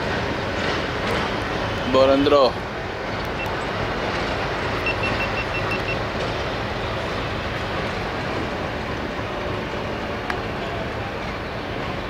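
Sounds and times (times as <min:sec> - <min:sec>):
train engine and wheels: 0:00.0 - 0:12.0
short high beeps: 0:04.8 - 0:06.0.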